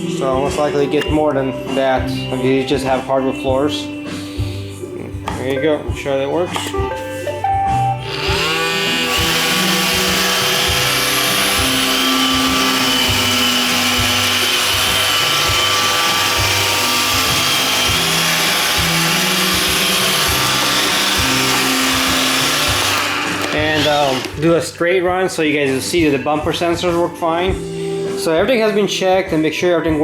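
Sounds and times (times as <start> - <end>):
robot vacuum whirring: 8.0 - 24.4.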